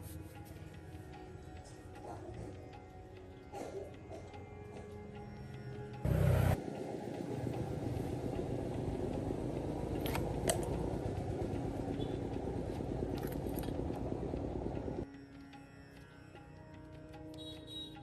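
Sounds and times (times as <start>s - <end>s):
vehicle engine rumble: 6.0s - 15.0s.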